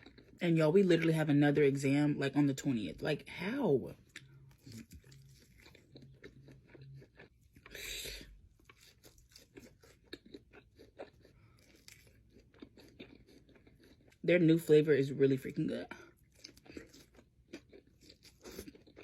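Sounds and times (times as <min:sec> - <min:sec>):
chewing crispy chicken: 0:00.0 - 0:01.1, 0:04.0 - 0:14.3, 0:15.5 - 0:19.0.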